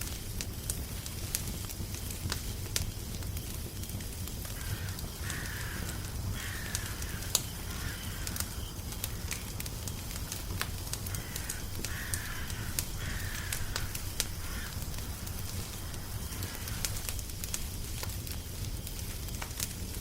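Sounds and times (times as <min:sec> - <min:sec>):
wood fire crackling: 0:00.0 - 0:20.0
crow cawing: 0:04.6 - 0:09.4, 0:11.0 - 0:17.1.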